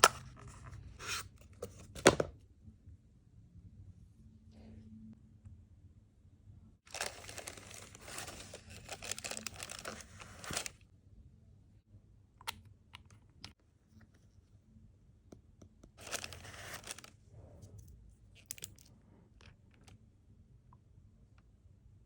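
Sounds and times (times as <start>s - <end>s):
wrapping crinkling: 6.9s - 10.7s, 16.0s - 17.1s.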